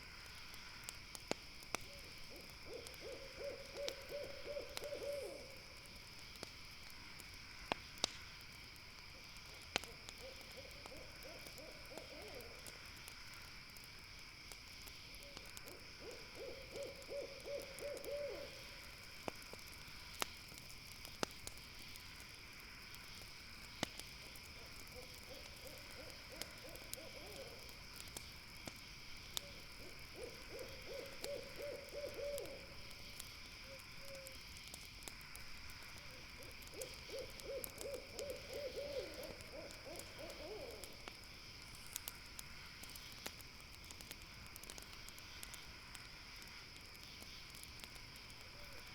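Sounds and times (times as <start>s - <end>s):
campfire crackling pops: 0.0s - 48.9s
owl hooting: 1.9s - 5.6s, 10.2s - 12.6s, 15.7s - 18.6s, 25.0s - 27.7s, 29.4s - 32.7s, 36.4s - 41.0s.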